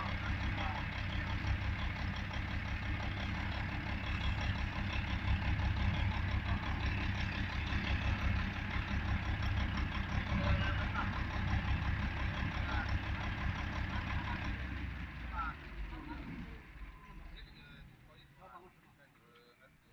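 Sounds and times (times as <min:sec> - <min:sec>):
diesel generator running: 0:00.0 - 0:19.9.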